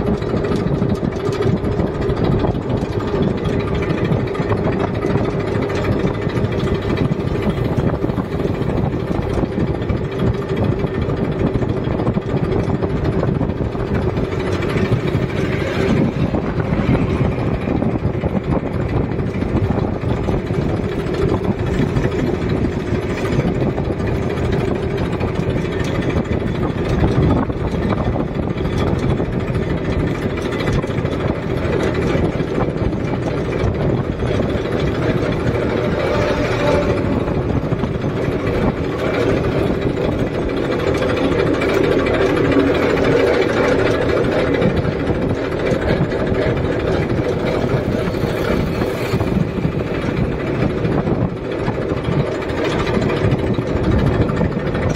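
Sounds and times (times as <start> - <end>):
tractor diesel engine running: 0.0 - 54.9.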